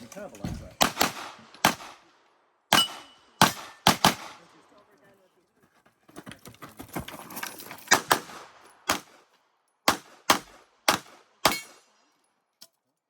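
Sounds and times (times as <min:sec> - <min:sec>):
pistol shots: 0:00.8 - 0:02.0, 0:02.7 - 0:04.4, 0:07.9 - 0:09.2, 0:09.9 - 0:11.8.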